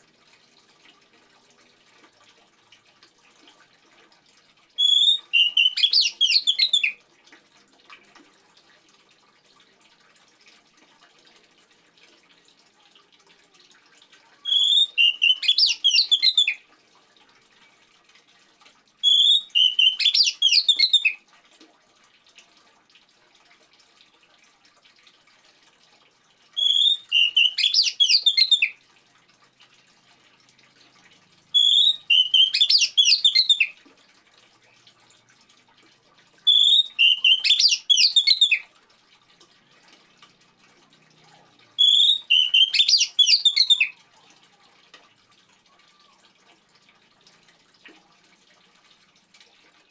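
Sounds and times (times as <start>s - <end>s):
trickle of water: 0.0s - 49.9s
bird whistling song: 4.8s - 7.0s, 14.5s - 16.6s, 19.0s - 21.2s, 26.6s - 28.8s, 31.6s - 33.8s, 36.5s - 38.7s, 41.8s - 44.0s.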